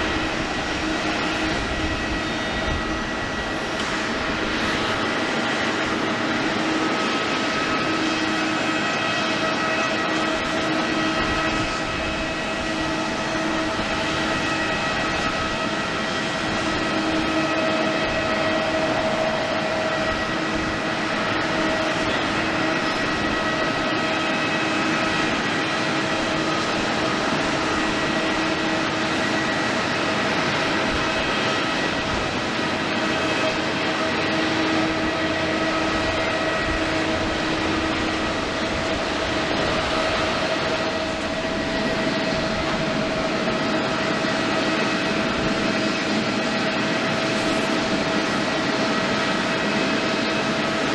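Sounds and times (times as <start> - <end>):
jet engines whining at low power: 0.0 - 50.9.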